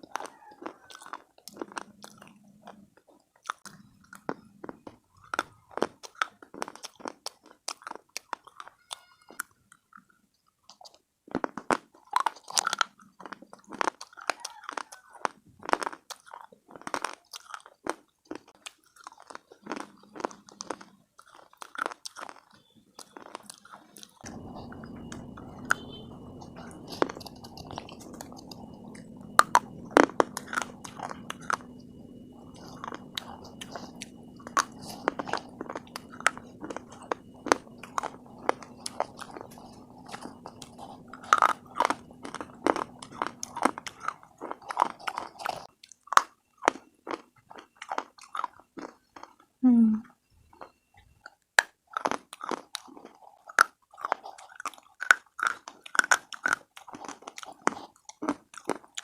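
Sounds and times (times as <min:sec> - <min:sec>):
steady low hum: 0:24.2 - 0:45.7.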